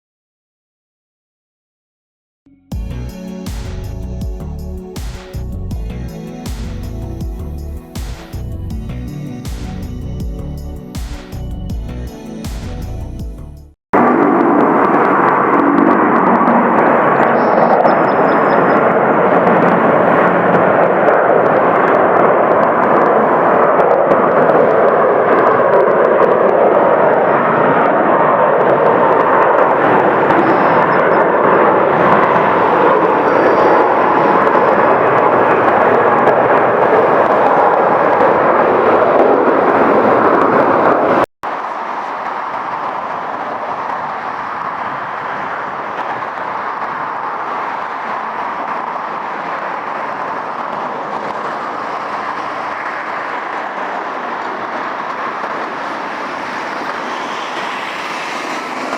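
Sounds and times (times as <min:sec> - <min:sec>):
jet airliner passing: 0:14.0 - 0:58.9
quieter aircraft noise: 0:14.0 - 0:58.9.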